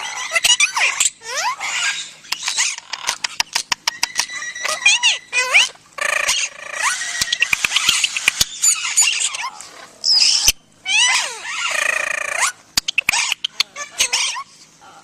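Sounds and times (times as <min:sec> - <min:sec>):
animal squealing: 0:00.0 - 0:14.6
animal squeaking and chirping: 0:00.0 - 0:14.7
sharp clicks: 0:02.2 - 0:04.4, 0:07.2 - 0:08.6.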